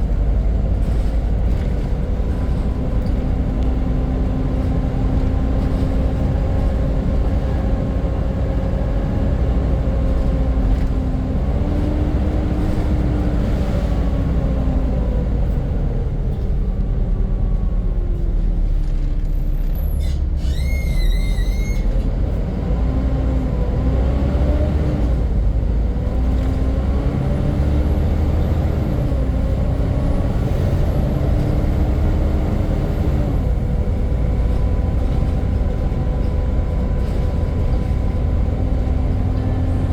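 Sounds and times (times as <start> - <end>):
bus engine whining: 0.0 - 39.9
brief high squeal: 19.7 - 22.0.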